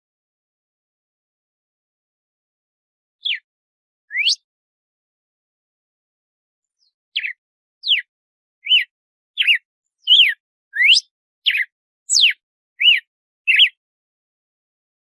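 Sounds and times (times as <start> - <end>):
bird singing whistled notes: 3.2 - 3.5, 4.1 - 4.5, 6.7 - 13.8.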